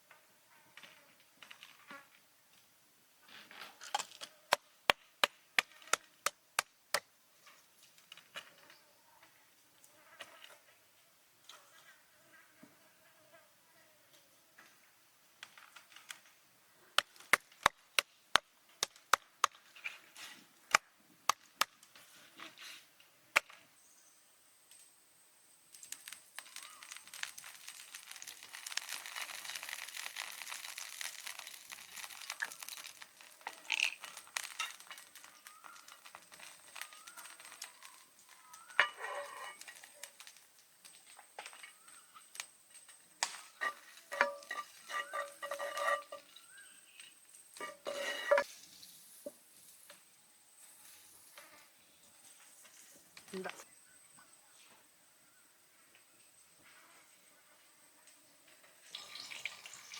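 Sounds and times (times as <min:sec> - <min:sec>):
metal cookware clinks: 0:43.6 - 0:46.4.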